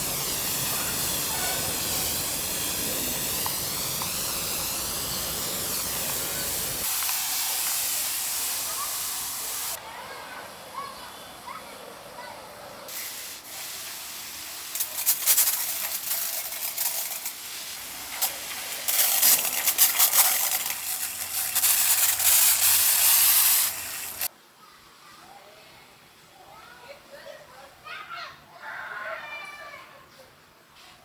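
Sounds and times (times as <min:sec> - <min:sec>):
loud hiss with crackles: 0:00.0 - 0:12.2, 0:12.9 - 0:24.3.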